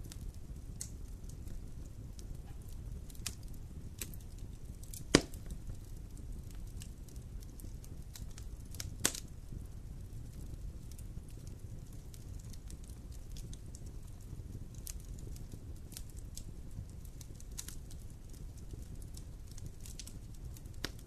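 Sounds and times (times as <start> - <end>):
campfire burning: 0.0 - 21.0
wood snapping pops: 5.0 - 5.5, 9.0 - 9.2.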